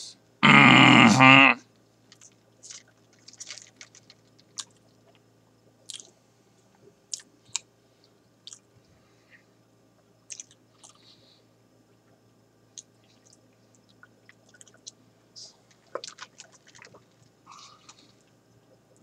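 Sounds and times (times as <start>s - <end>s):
person chewing food: 2.2s - 5.2s, 5.8s - 6.2s, 7.1s - 8.7s, 10.0s - 11.1s, 12.0s - 19.0s.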